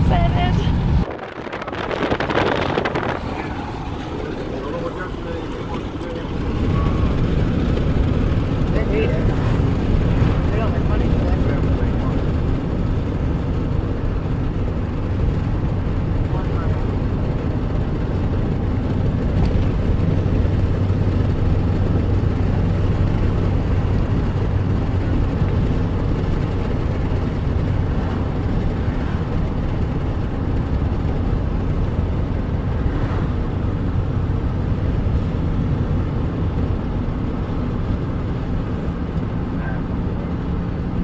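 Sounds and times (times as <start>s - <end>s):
car engine hum: 0.0s - 41.0s
road noise: 0.0s - 41.0s.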